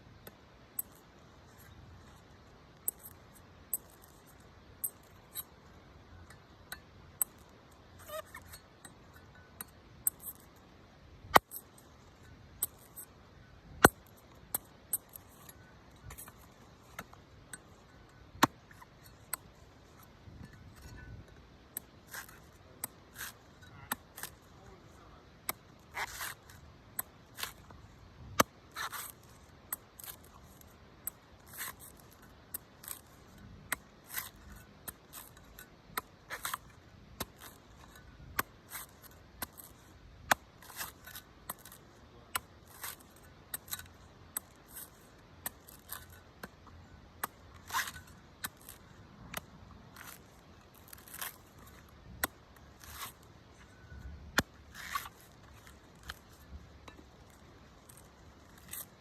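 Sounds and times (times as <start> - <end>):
knife cutting coconut husk: 21.7 - 57.0.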